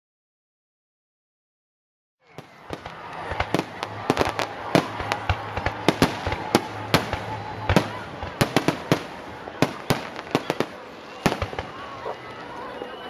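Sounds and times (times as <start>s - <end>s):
fireworks cracking and popping: 2.3s - 12.6s
fireworks crackling hiss: 2.4s - 12.6s.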